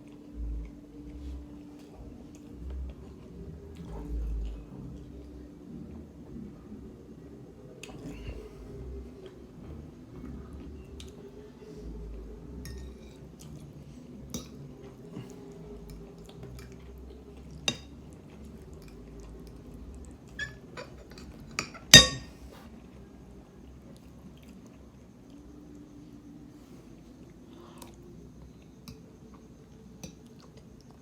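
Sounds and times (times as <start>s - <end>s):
utensils clinking on a dish: 20.4s - 22.4s.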